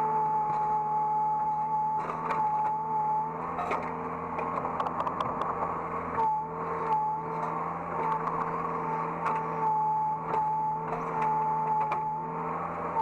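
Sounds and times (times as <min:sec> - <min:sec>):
excavator engine and hydraulic whine: 0:00.0 - 0:13.0
clicks and knocks: 0:04.6 - 0:05.7.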